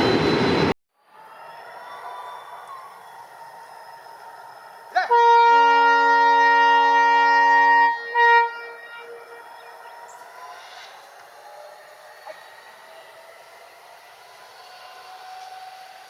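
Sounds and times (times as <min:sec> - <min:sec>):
train running noise: 0:00.0 - 0:01.3, 0:02.0 - 0:16.0
locomotive air horn: 0:05.0 - 0:11.1.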